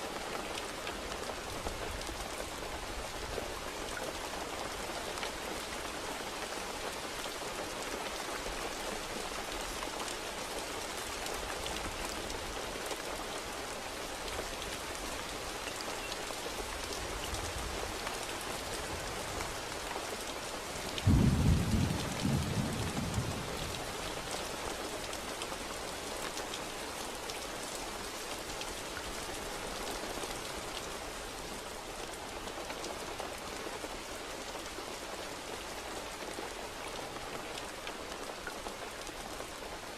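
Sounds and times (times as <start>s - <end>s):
steady rain: 0.0s - 39.9s
thunder clap rumbling: 21.0s - 24.0s.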